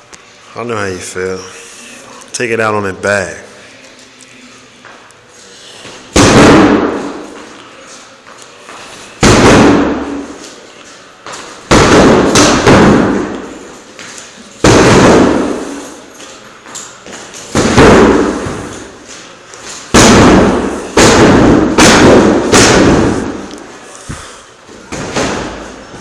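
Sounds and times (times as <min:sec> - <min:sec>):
punching bag being struck: 0:06.1 - 0:07.3, 0:09.2 - 0:10.3, 0:11.7 - 0:13.6, 0:14.6 - 0:15.9, 0:17.5 - 0:18.9, 0:19.9 - 0:23.4, 0:24.9 - 0:25.8.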